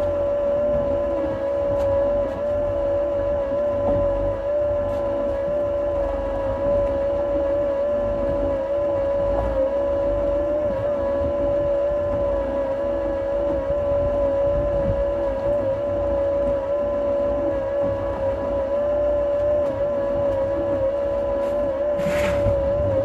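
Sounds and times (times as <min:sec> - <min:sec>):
engine running with high whine: 0:00.0 - 0:23.0.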